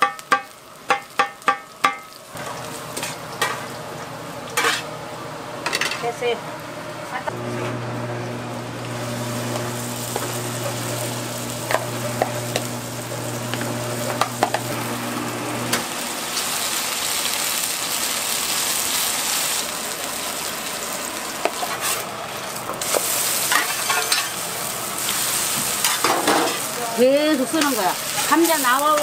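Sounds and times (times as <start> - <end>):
batter sizzling on a griddle: 0.0 - 5.9, 8.1 - 29.0
metal scraping on griddle: 4.6 - 4.9, 21.4 - 29.0.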